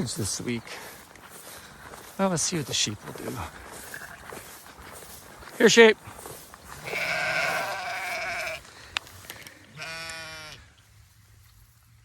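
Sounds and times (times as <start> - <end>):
sheep bleating: 6.7 - 8.6, 9.7 - 10.7.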